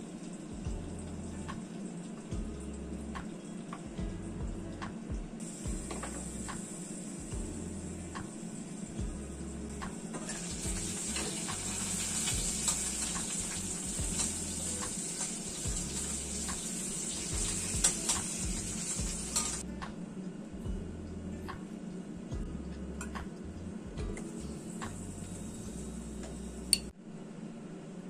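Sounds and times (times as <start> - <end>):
food sizzling in a frying pan: 5.4 - 19.6.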